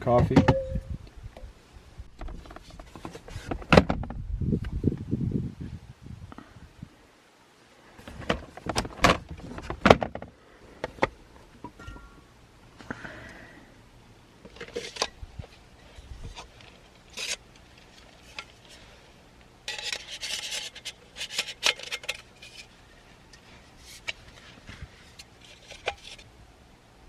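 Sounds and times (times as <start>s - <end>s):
rubbing and scraping small objects: 14.4s - 26.4s.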